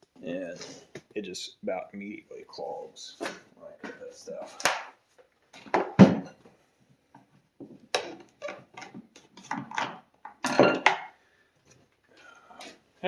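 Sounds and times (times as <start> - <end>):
knocks and clinks on workbench: 5.6 - 6.4, 7.6 - 11.2.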